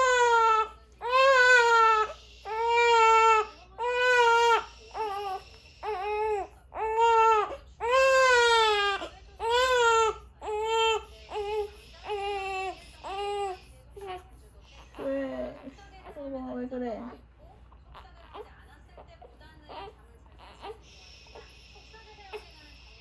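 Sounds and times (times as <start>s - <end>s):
baby crying: 0.0s - 14.2s, 19.7s - 20.8s.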